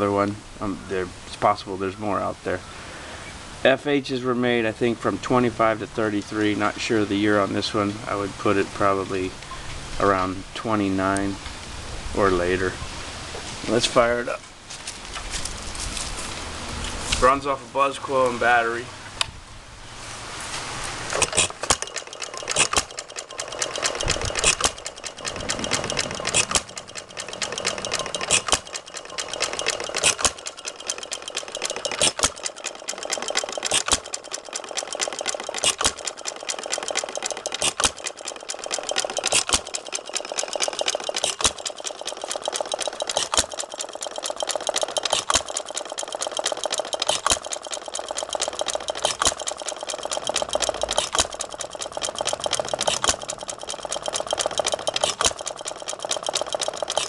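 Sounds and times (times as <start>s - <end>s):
engine clatter: 20.8s - 57.0s.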